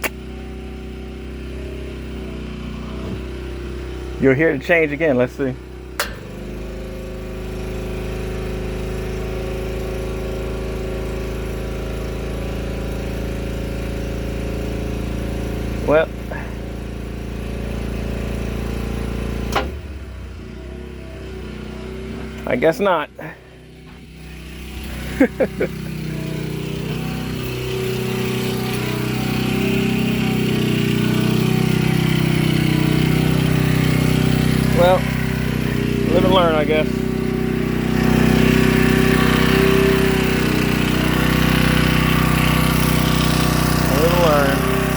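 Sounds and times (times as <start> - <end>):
generator engine labouring: 0.0 - 44.9
compressor switch click: 6.0 - 6.5.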